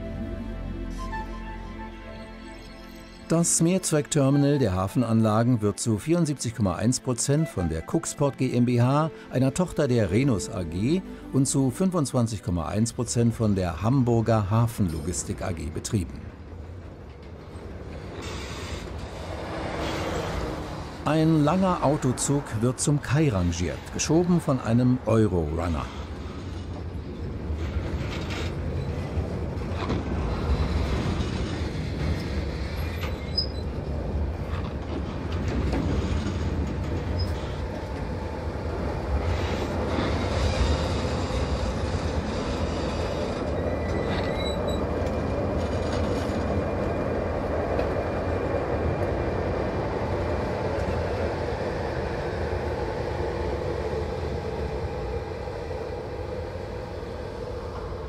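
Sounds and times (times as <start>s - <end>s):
freight train rumbling: 0.0s - 58.0s
high wheel squeal: 32.7s - 33.9s, 39.4s - 45.0s.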